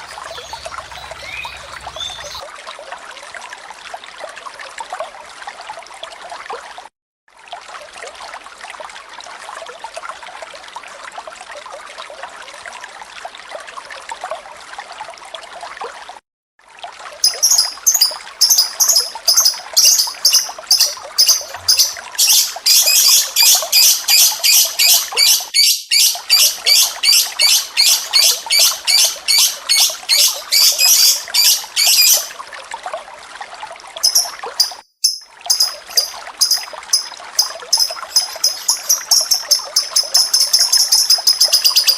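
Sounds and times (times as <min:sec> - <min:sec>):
bird chirping rapidly: 0:00.0 - 0:02.4, 0:17.2 - 0:32.3, 0:34.0 - 0:41.9
water trickling: 0:00.0 - 0:41.9.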